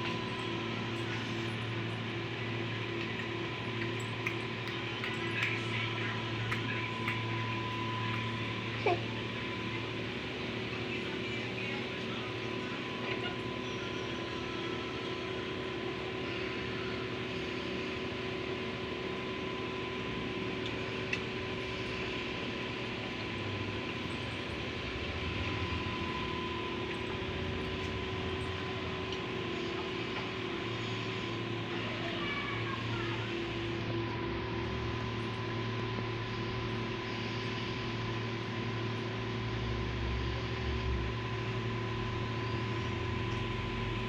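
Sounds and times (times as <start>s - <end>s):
mechanical hum with whine: 0.0s - 44.0s.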